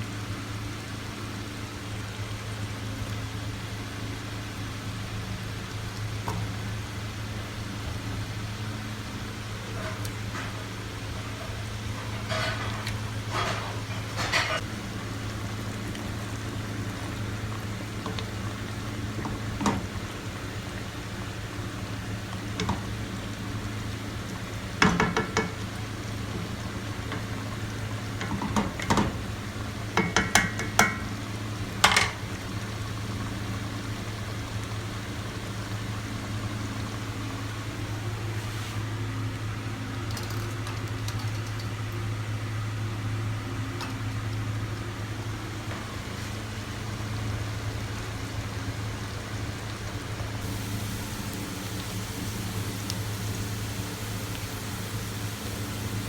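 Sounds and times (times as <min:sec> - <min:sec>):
cookware clinking and clattering: 0:12.2 - 0:14.6.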